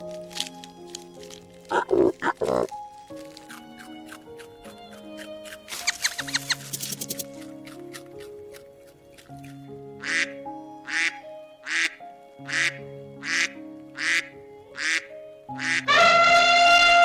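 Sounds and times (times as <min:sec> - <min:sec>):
background music with held notes: 0:00.0 - 0:17.0
duck quacking: 0:10.0 - 0:10.3, 0:10.9 - 0:17.0.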